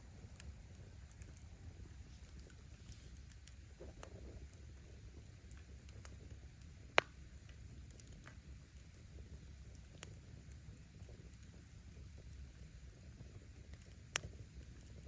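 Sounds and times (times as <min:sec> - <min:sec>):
firewood crackling: 0:00.0 - 0:15.0
low rumble of flame: 0:00.0 - 0:15.0.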